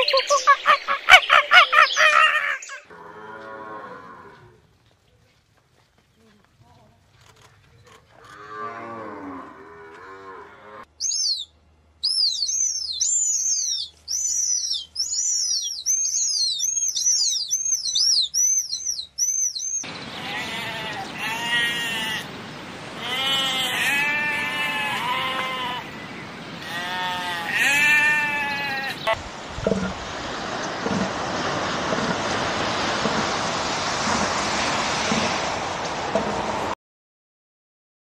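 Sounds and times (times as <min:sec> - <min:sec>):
raptor chicks calling: 0:00.0 - 0:02.9, 0:11.0 - 0:29.2
sheep bleating: 0:20.2 - 0:22.3, 0:23.0 - 0:25.9, 0:26.6 - 0:29.2.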